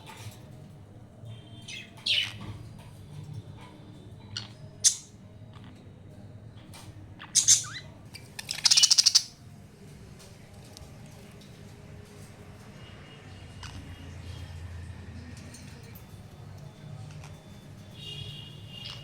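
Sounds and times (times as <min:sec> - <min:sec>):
budgerigars chirping: 0:07.3 - 0:09.3
rattling squawk: 0:08.5 - 0:09.3.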